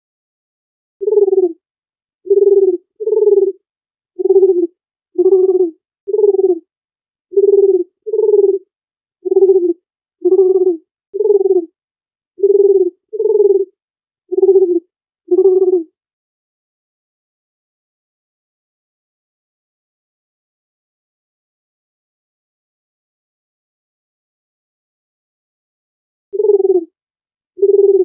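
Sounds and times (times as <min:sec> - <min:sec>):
dove cooing: 0:01.0 - 0:01.6, 0:02.3 - 0:03.6, 0:04.2 - 0:06.6, 0:07.4 - 0:11.7, 0:12.4 - 0:13.7, 0:14.3 - 0:15.9, 0:26.4 - 0:26.9, 0:27.6 - 0:28.0.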